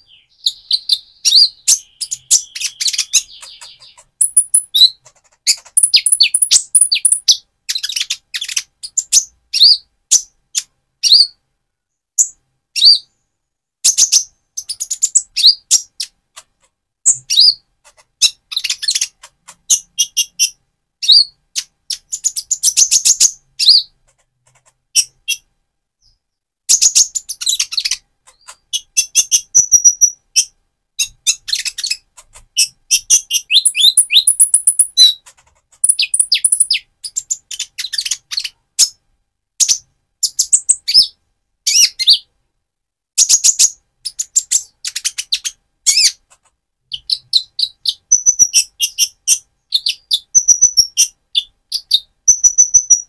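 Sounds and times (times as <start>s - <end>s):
bird singing high thin chirps: 0.0s - 8.6s, 32.6s - 35.2s, 35.8s - 38.5s, 47.0s - 49.1s, 49.7s - 53.0s.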